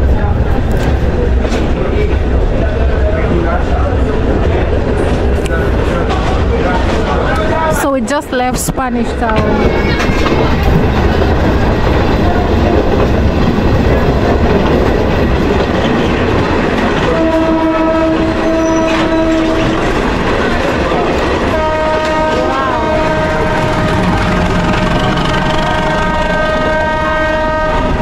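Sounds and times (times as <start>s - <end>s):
train rumbling on rails: 0.0s - 28.0s
train horn blasts: 17.0s - 19.9s, 21.5s - 28.0s.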